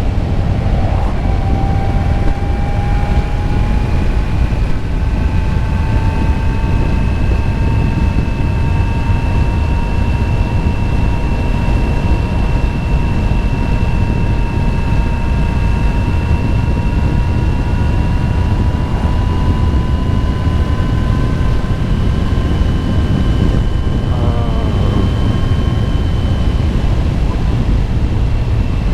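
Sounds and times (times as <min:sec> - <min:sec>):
thin rising whine: 0:00.0 - 0:07.7, 0:19.0 - 0:28.9
motorcycle engine and wind rumble: 0:00.0 - 0:28.9.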